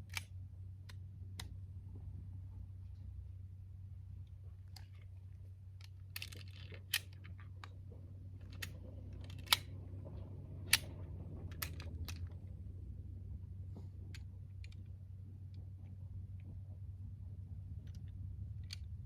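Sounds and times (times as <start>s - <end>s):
steady low hum: 0.0s - 19.0s
clicks and rattles of handling: 4.3s - 12.7s, 13.7s - 16.8s, 17.8s - 19.0s.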